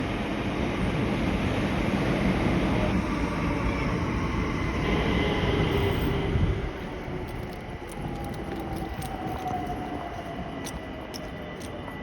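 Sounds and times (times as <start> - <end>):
faint train whine: 0.0 - 12.0
train wheels rumbling on rails: 0.0 - 12.0.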